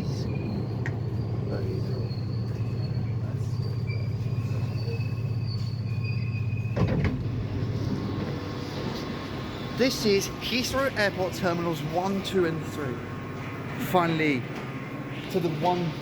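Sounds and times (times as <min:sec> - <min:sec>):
high-pitched wheel squeals: 0:00.0 - 0:10.9
train rumbling: 0:00.0 - 0:16.0.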